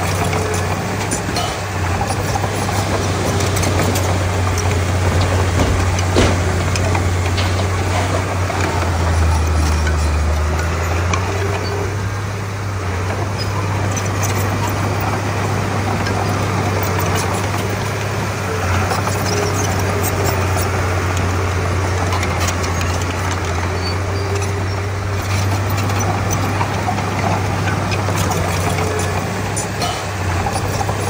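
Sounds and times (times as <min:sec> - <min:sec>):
bulldozer diesel engine running: 0:00.0 - 0:31.0
light clicks and clanks: 0:00.1 - 0:11.9, 0:18.7 - 0:31.0.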